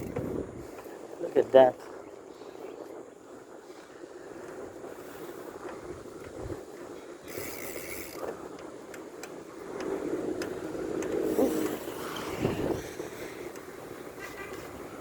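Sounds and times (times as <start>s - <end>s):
wind noise: 0.0s - 15.0s
street traffic: 8.6s - 15.0s
motor vehicle passing: 9.8s - 15.0s.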